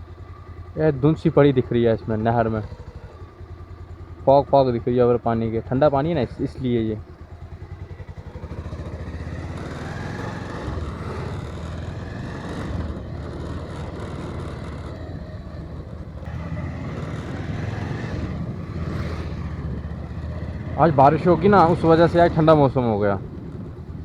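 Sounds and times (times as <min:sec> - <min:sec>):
motorcycle engine running: 0:00.0 - 0:24.0
road noise: 0:00.0 - 0:24.0.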